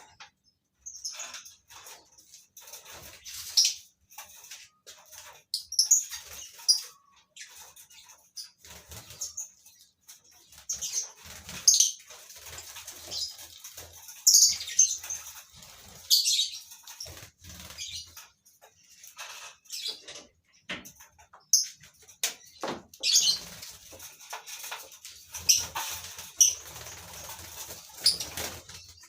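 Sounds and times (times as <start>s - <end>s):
lovebirds chirping and shrieking: 0.0s - 29.0s
wings flapping: 10.4s - 18.3s, 23.1s - 29.0s.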